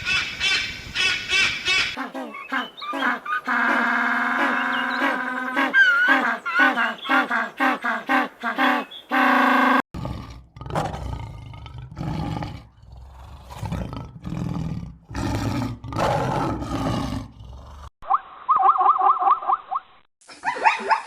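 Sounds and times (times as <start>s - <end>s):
big cat roaring: 10.0s - 17.9s.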